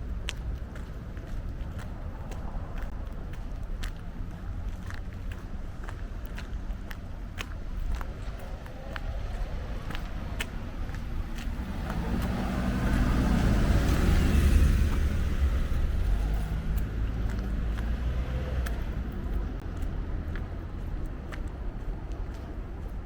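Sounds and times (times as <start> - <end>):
car driving past: 8.2 - 19.6.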